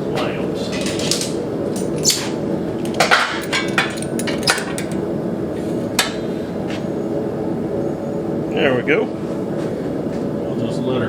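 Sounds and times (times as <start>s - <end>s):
steady background noise: 0.0s - 11.0s
hammer striking steel: 6.0s - 6.3s.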